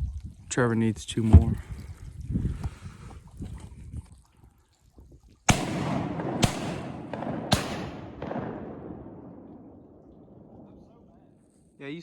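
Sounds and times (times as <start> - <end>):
faint gunshot reports: 5.5 - 9.6
shotgun shots echoing: 5.5 - 11.4.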